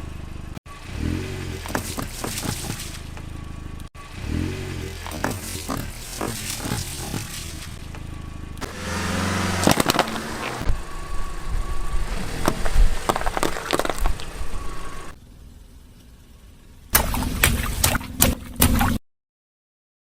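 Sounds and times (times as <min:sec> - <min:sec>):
car engine rumble: 0:00.0 - 0:19.0
tyres crushing objects: 0:08.6 - 0:10.7, 0:12.2 - 0:15.1.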